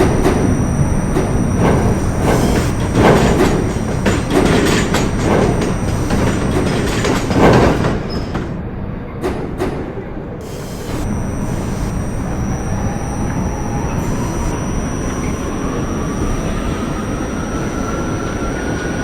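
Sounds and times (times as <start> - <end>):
subway train rumbling: 4.8 - 10.4.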